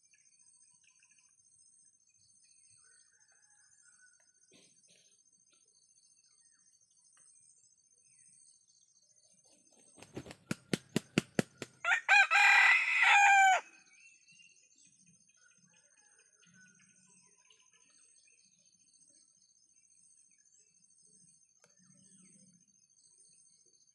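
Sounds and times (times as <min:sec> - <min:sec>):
rooster wings flapping: 0:09.8 - 0:11.8
rooster crowing: 0:11.8 - 0:13.8.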